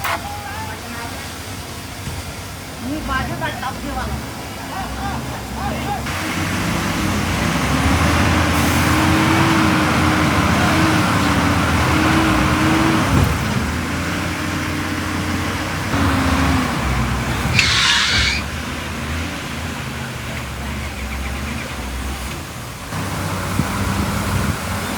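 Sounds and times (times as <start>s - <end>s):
heavy diesel engine under load: 1.2s - 24.9s
air hiss: 17.5s - 18.6s.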